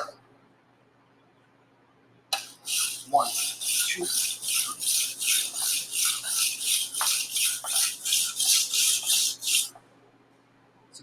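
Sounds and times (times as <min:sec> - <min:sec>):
knife scraping on sharpening stone: 0:02.4 - 0:09.7.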